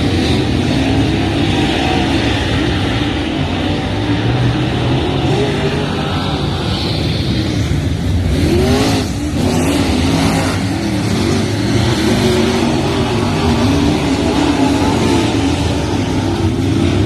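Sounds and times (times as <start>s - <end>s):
race car engine revving: 0.0s - 17.0s.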